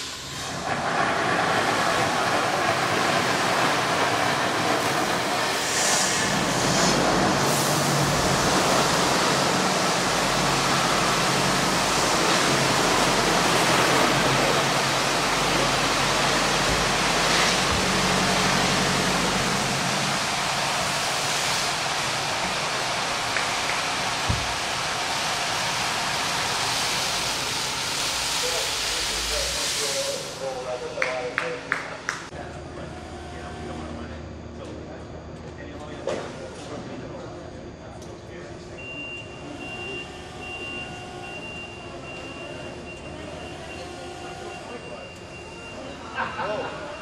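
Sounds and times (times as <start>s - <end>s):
spraying water rushing: 0.0s - 30.6s.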